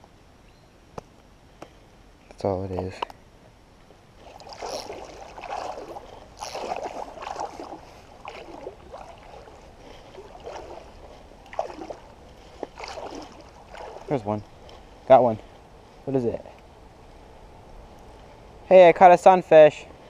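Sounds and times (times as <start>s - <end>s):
creek water splashing: 4.1s - 15.6s.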